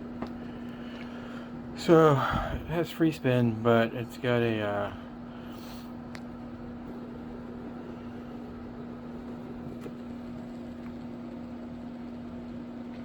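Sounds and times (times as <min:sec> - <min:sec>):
low hum: 0:00.0 - 0:13.0
skateboard wheel whirring: 0:06.8 - 0:13.0.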